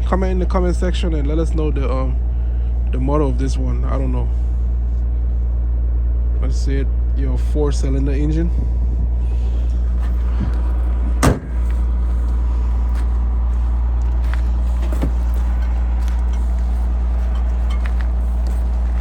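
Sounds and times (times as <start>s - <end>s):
car engine humming: 7.9s - 19.0s
sharp knock: 11.2s - 11.7s.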